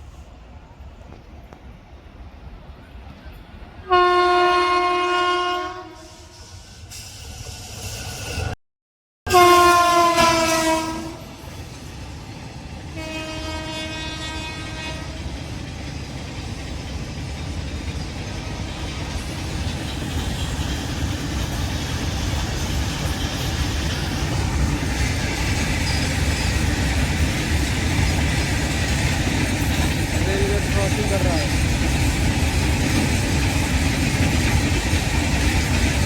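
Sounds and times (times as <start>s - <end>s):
train wheels rumbling on track: 0.0s - 8.6s, 9.3s - 36.0s
locomotive horn blasts: 3.8s - 6.4s, 9.3s - 11.3s, 13.0s - 15.2s.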